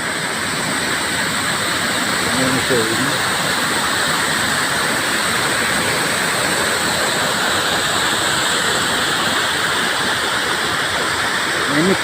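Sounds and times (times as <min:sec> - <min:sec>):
waterfall pouring: 0:00.0 - 0:12.0.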